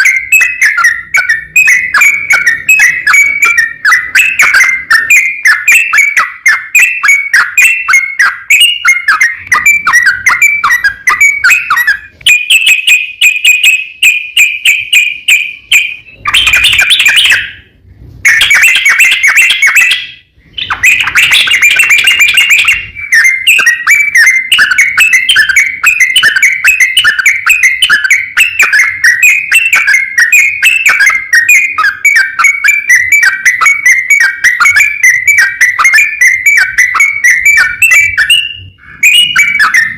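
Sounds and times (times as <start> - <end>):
bird singing chattering notes: 0.0 - 39.9.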